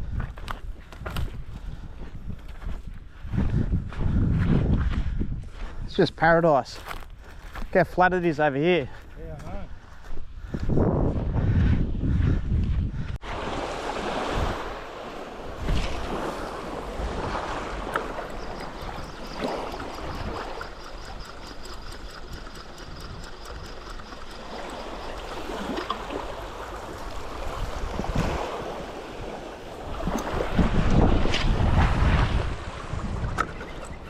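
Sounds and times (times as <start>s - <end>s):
wind on microphone: 0.0s - 5.9s, 9.0s - 34.0s
sea water sloshing and lapping: 13.2s - 34.0s
faint rapid ticking: 18.3s - 25.4s.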